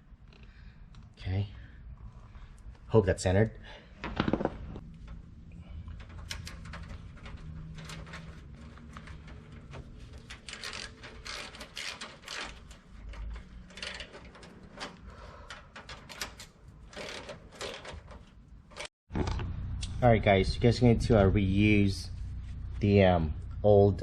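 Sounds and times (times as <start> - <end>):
low steady hum: 19.1 - 24.0.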